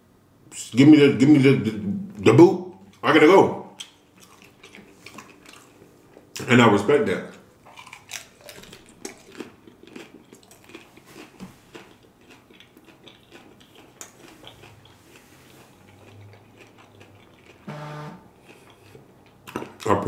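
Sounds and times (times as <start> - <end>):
person crunching taco shell: 3.8 - 6.5, 7.6 - 17.7, 18.4 - 19.9.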